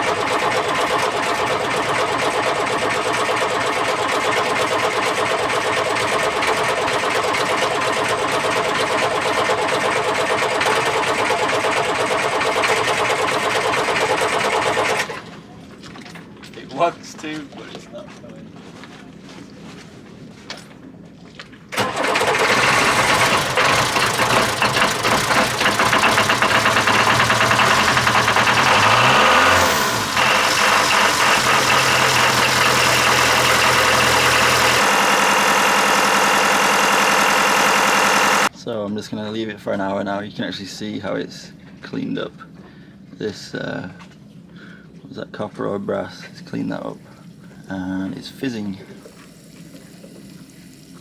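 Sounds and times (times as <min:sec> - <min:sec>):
starter motor cranking diesel engine: 0:00.0 - 0:15.4, 0:21.7 - 0:38.5.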